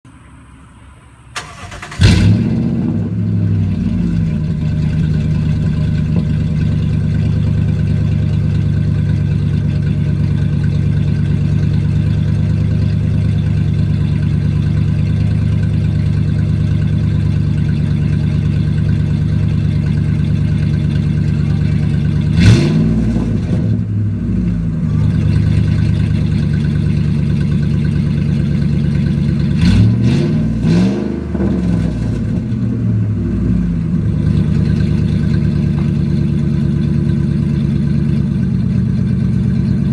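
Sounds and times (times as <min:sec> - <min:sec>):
truck engine idling and revving: 0:00.1 - 0:39.9
truck engine cranking: 0:01.1 - 0:07.4.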